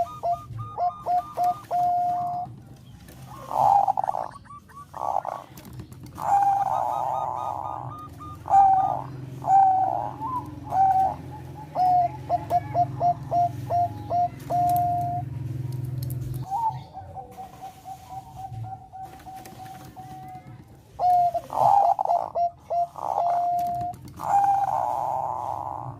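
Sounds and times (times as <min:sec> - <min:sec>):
dove cooing: 0:00.0 - 0:25.9.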